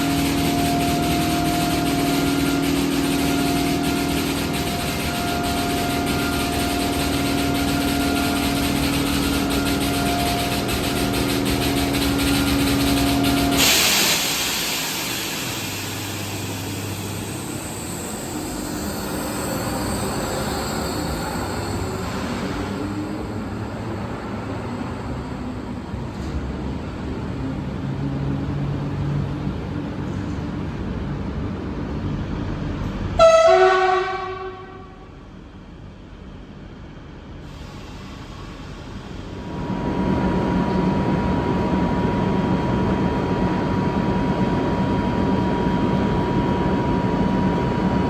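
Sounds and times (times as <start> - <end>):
train horn blast: 0.0 - 13.8, 33.2 - 35.2
train rumbling: 0.0 - 48.0.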